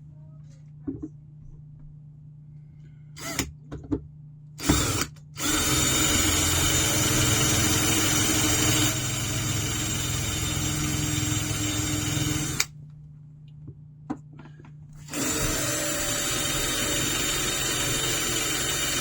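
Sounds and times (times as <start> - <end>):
power drill boring through metal: 3.2 - 3.5, 4.6 - 12.7, 15.0 - 19.0
drill stopping click: 4.6 - 12.7.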